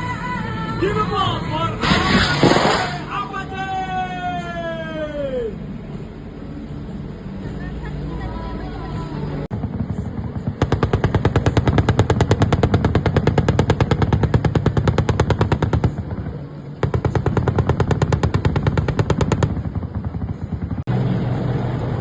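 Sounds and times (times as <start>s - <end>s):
automatic gunfire bursts: 10.6s - 16.1s, 16.8s - 19.6s.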